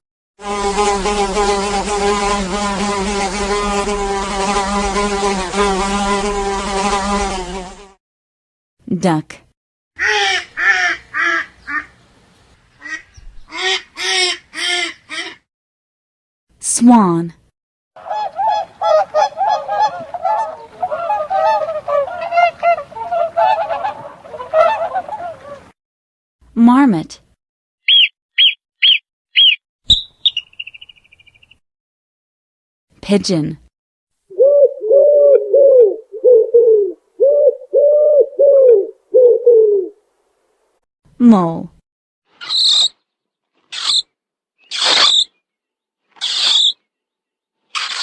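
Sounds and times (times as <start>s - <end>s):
fly buzzing in flight: 0.4s - 8.0s
swans honking: 18.0s - 25.7s.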